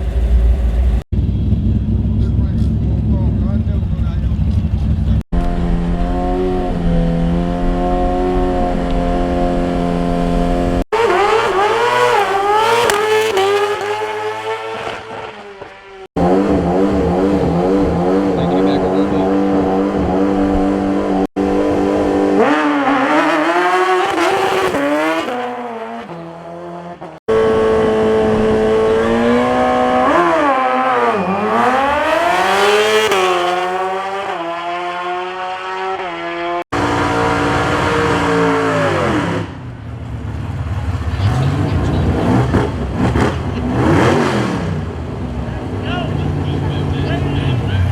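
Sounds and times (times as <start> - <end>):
racing car engines revving: 0.0 - 47.9
tire squeal: 28.9 - 32.3.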